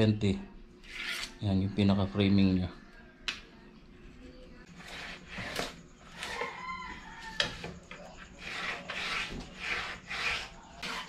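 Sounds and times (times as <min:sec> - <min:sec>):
hand rubbing on plywood: 0:08.4 - 0:11.0.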